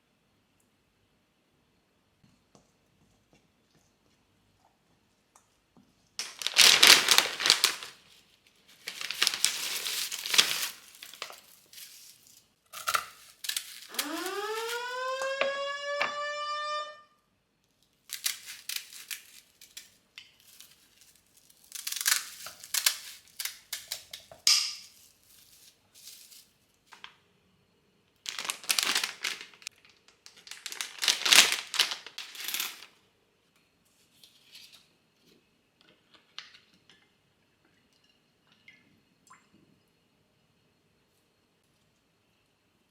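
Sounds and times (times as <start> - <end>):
rustling and crinkling: 6.2 - 15.0, 17.8 - 27.2, 28.2 - 33.0.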